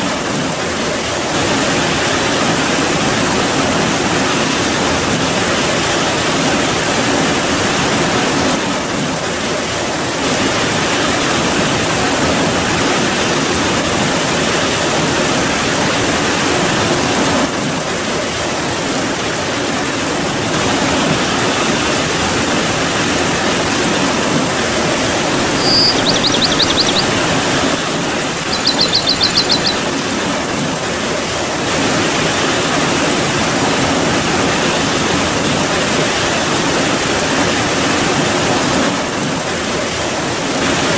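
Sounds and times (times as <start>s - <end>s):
high-pitched trills: 25.3s - 30.0s.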